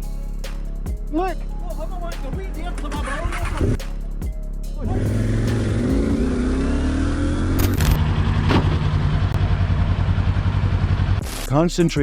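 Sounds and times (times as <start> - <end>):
vehicle engine accelerating: 4.8 - 11.4.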